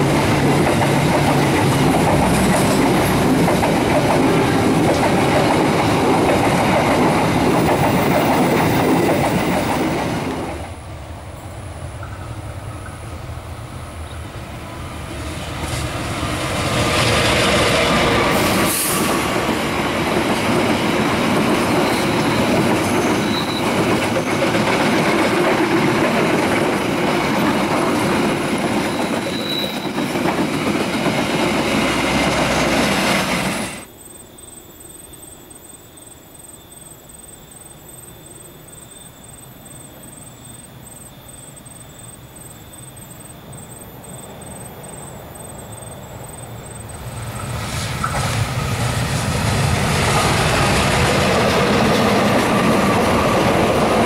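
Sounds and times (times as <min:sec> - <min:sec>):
passenger train passing: 0:00.0 - 0:34.0, 0:37.0 - 0:54.0
wheel squeals: 0:21.6 - 0:24.6, 0:28.7 - 0:30.4.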